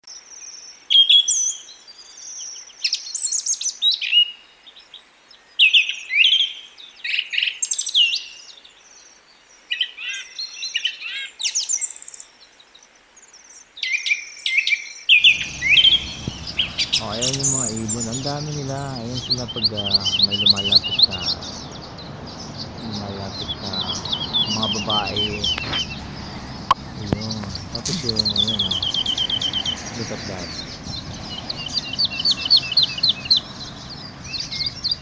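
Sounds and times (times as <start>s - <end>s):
small birds chirping: 0.0s - 35.0s
low rumble: 15.2s - 20.0s, 20.9s - 35.0s.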